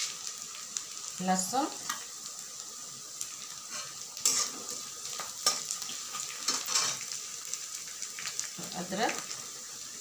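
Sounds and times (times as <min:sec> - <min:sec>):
garlic and onions sizzling: 0:00.0 - 0:10.0
metal spatula scraping a pan: 0:03.6 - 0:07.1.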